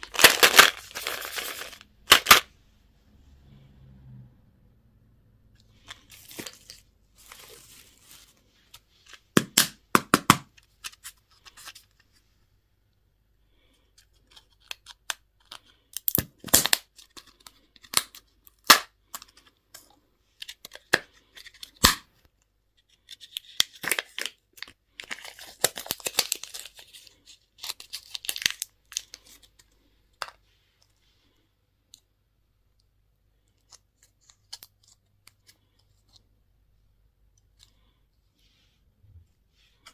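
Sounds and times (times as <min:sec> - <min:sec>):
packaging tearing and crinkling: 0:00.0 - 0:02.4, 0:23.2 - 0:29.4.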